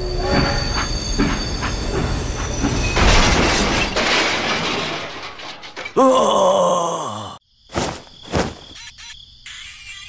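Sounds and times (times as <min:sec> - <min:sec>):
train wheels clattering: 0:00.0 - 0:03.4
loud train crash: 0:00.1 - 0:06.0.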